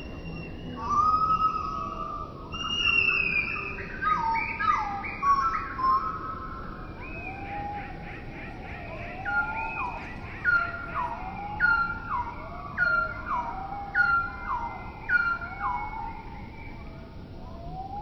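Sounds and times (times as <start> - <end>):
lower bird call rising and falling: 7.0 - 12.2.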